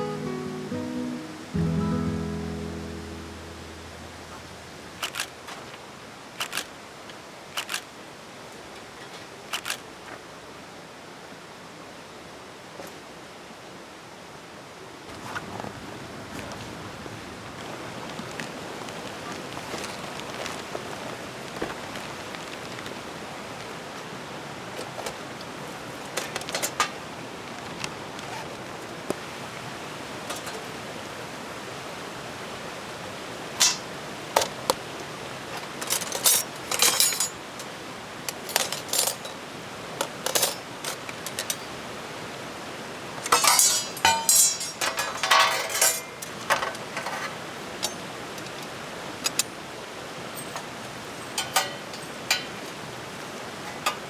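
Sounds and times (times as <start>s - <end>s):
steady hiss: 0.0s - 8.4s
metal parts clinking: 4.4s - 5.4s, 33.6s - 33.9s, 35.6s - 39.4s, 40.2s - 41.8s, 43.3s - 46.8s, 51.4s - 52.6s.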